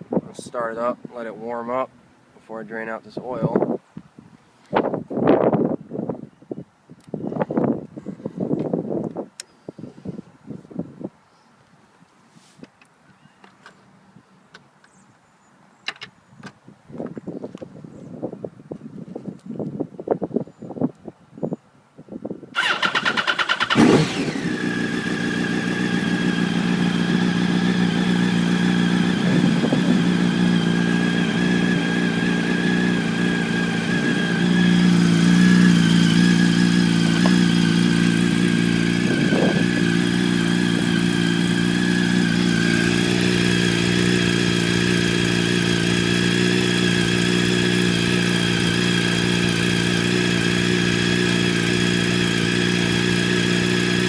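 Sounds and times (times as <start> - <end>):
motorcycle engine starting and idling: 22.6 - 54.0.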